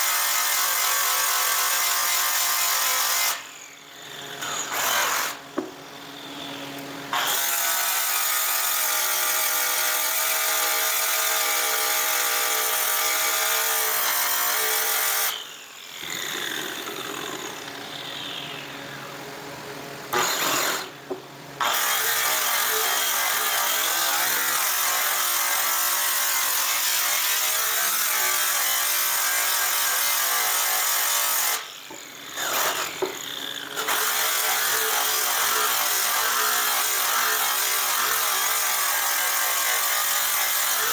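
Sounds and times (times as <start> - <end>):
rotary tool polishing metal: 4.2 - 5.7, 20.1 - 21.0, 21.6 - 40.9.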